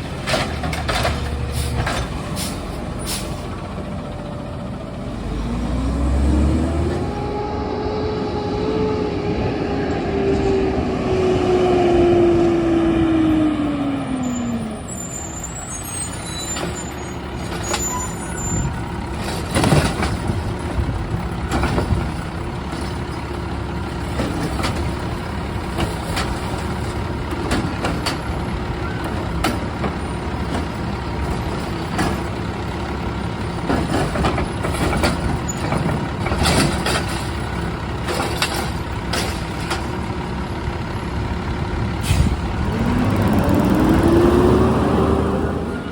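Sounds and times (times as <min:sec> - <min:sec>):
garbage truck engine revving: 0:00.0 - 0:45.9
sharp knocks and clanks: 0:33.6 - 0:40.0.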